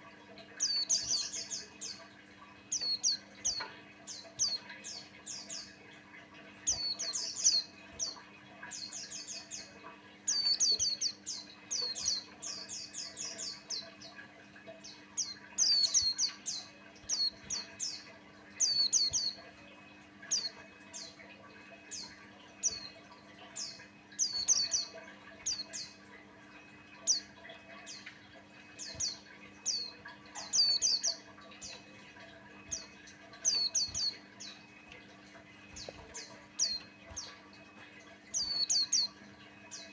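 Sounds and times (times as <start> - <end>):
bird singing high chirps: 0.6 - 2.1, 2.7 - 5.8, 6.6 - 8.2, 8.8 - 14.2, 14.9 - 19.5, 23.6 - 26.0, 26.9 - 32.0, 32.6 - 35.0, 38.3 - 39.9.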